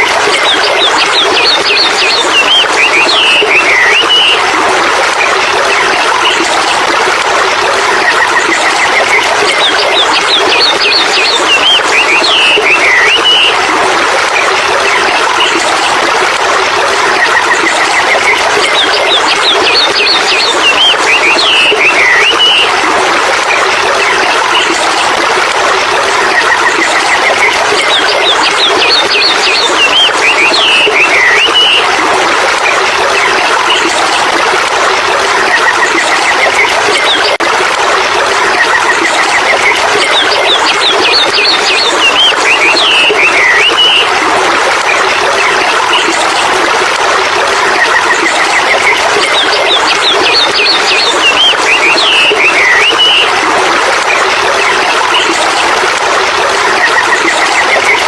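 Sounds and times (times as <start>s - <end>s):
rushing water: 0.0s - 58.0s
birdsong chirps and whistles: 0.2s - 4.5s, 8.2s - 13.7s, 17.3s - 22.7s, 27.2s - 31.9s, 39.0s - 44.2s, 47.8s - 53.4s.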